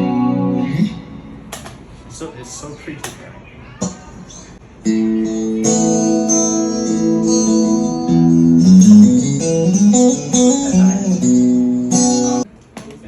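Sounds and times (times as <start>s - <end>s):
electric guitar chords and melody: 0.0s - 1.4s, 4.8s - 12.5s.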